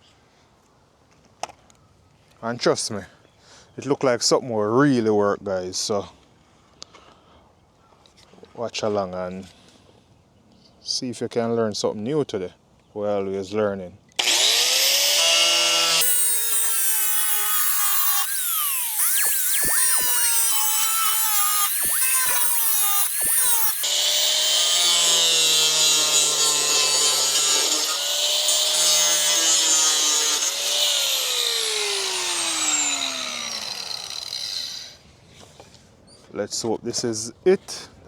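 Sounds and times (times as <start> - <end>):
power tool cutting plastic: 14.2 - 35.0.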